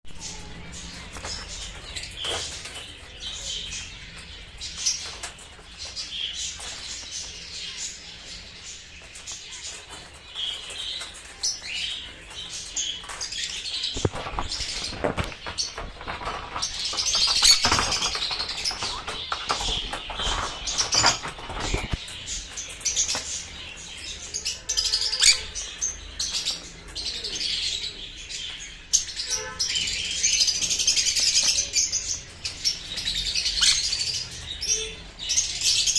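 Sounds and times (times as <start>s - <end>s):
parrots chirping and calling: 0.2s - 28.0s, 28.9s - 35.9s
rustling: 12.3s - 23.6s.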